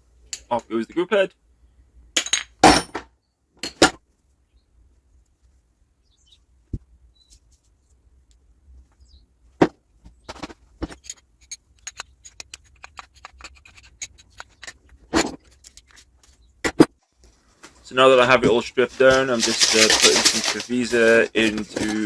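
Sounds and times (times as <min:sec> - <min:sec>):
metal parts clicking and tapping: 0:10.8 - 0:16.4.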